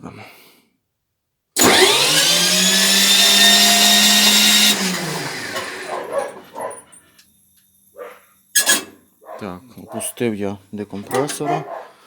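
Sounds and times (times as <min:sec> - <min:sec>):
starter motor cranking engine: 0:01.6 - 0:06.9, 0:11.0 - 0:11.6.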